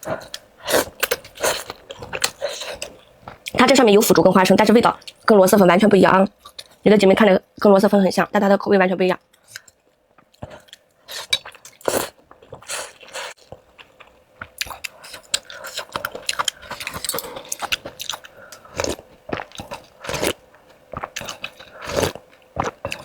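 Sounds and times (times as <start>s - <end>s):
crunchy chewing: 9.4s - 23.0s.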